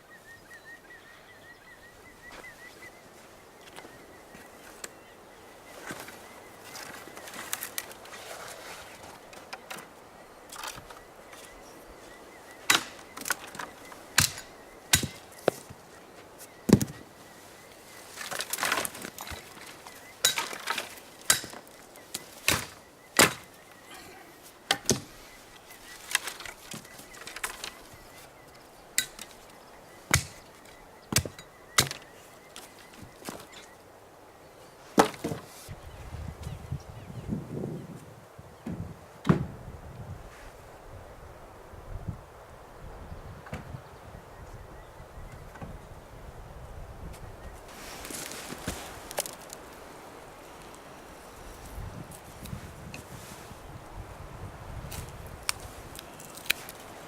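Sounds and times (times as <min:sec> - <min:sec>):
wood being chopped: 0:12.6 - 0:15.8, 0:16.7 - 0:17.0, 0:20.2 - 0:23.6, 0:24.7 - 0:25.1, 0:30.1 - 0:30.5, 0:31.1 - 0:32.1, 0:35.0 - 0:35.5.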